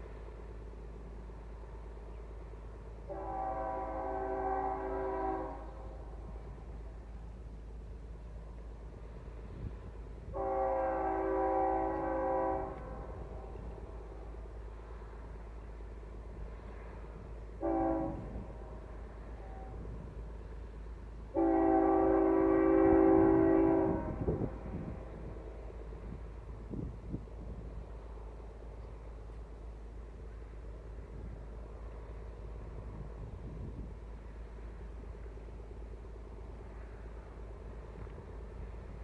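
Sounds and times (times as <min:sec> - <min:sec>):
locomotive horn blasts: 0:03.1 - 0:06.1, 0:10.3 - 0:13.7, 0:17.6 - 0:20.0, 0:21.3 - 0:25.5.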